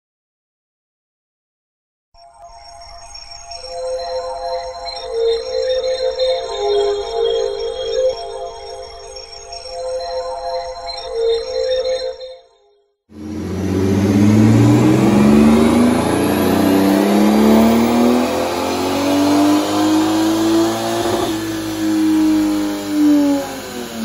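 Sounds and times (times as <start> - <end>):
car engine revving under load: 13.1 - 24.0.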